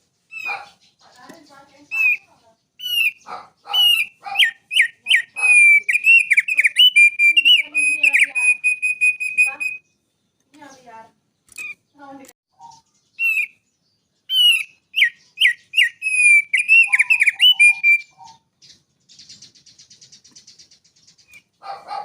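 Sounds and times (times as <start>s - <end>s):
bird singing whistled notes: 0.2s - 10.8s, 12.6s - 21.6s
fast buzzy bird trill: 0.3s - 9.9s, 14.3s - 21.8s.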